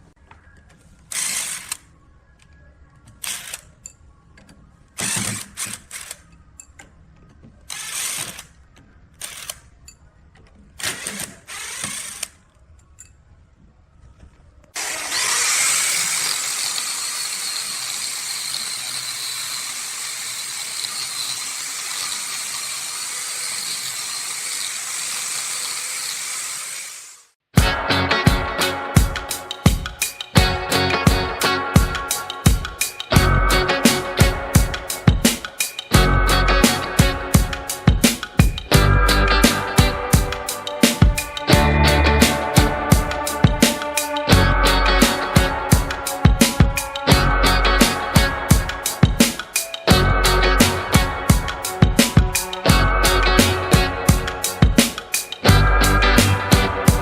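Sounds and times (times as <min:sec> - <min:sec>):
power tool running: 0:14.8 - 0:27.4.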